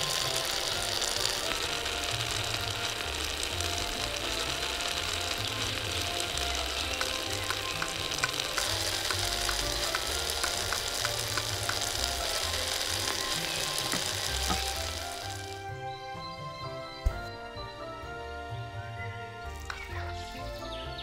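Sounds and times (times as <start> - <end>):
food sizzling in hot oil: 0.0 - 15.6.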